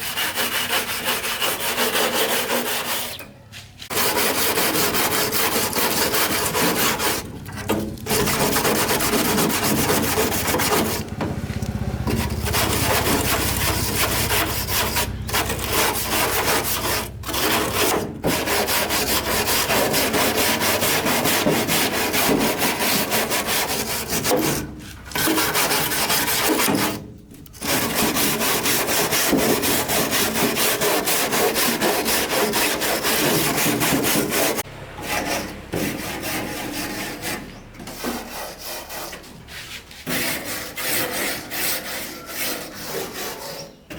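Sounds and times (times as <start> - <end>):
abrasive grinding rasp: 0.0 - 3.2, 3.9 - 43.9.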